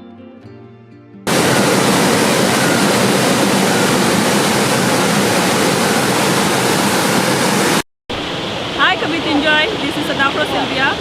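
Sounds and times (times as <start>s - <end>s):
waterfall rushing: 1.3s - 11.0s.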